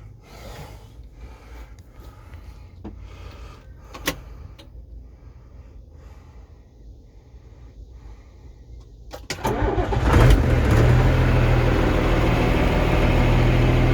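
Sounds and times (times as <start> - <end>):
diesel engine idling: 9.3 - 13.9.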